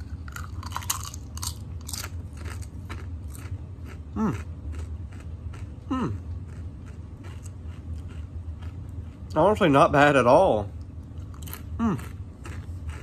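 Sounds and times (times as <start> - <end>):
potato chip being chewed: 0.0 - 9.6, 10.8 - 13.0
steady low hum: 0.0 - 13.0.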